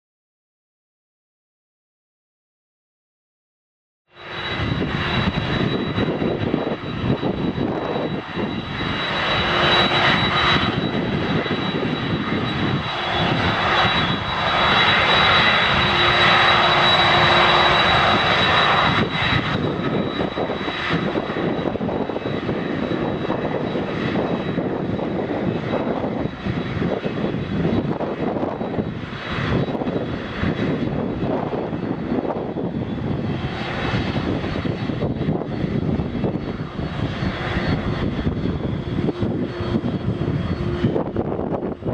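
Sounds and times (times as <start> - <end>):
jet engines running: 4.1 - 41.9
high-pitched whine: 4.2 - 41.9.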